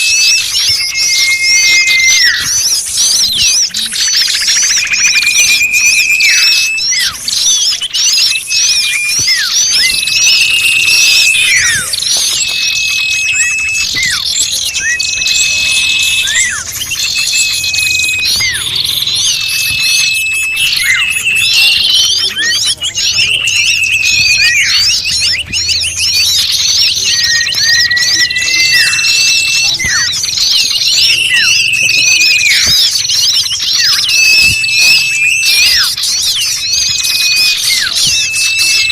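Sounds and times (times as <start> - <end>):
high bird whistles: 0.0 - 38.9
small birds chirping and calling: 0.0 - 38.9.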